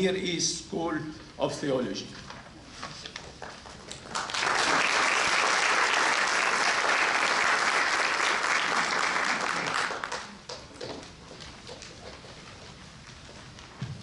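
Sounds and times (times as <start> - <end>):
audience applauding: 4.0 - 10.6.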